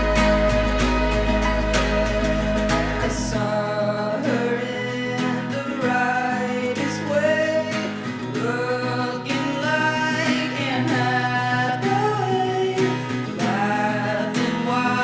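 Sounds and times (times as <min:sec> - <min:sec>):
low bass note: 0:00.0 - 0:03.3
person singing: 0:00.0 - 0:15.0
pop song with guitar: 0:00.0 - 0:15.0.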